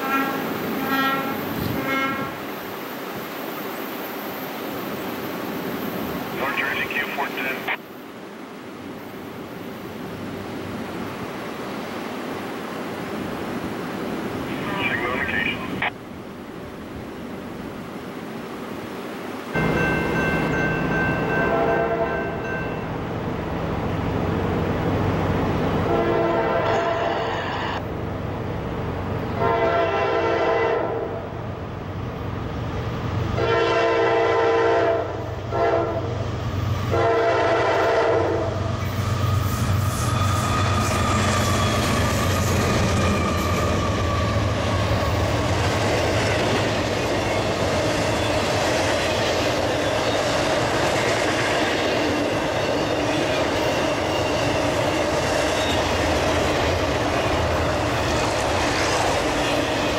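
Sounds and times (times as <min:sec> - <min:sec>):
train horn: 0:00.0 - 0:02.4, 0:21.3 - 0:22.4, 0:25.8 - 0:27.5, 0:29.4 - 0:31.3, 0:33.4 - 0:36.1, 0:36.9 - 0:38.6
diesel locomotives passing: 0:00.0 - 0:59.9.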